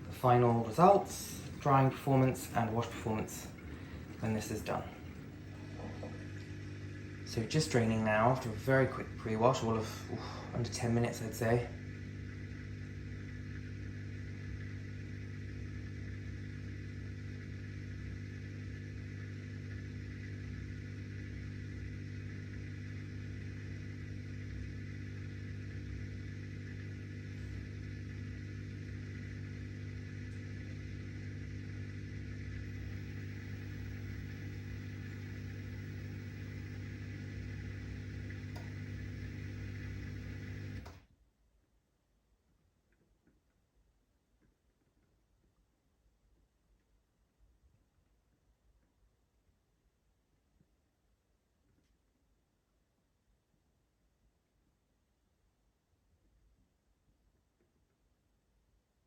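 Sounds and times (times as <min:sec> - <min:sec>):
dishwasher drain pump humming: 0:00.0 - 0:41.1.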